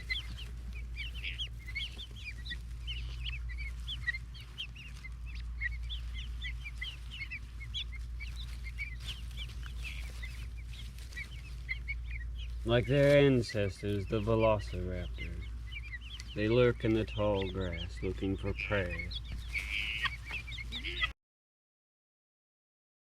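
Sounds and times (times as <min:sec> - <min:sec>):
guinea fowl keets peeping: 0:00.0 - 0:21.1.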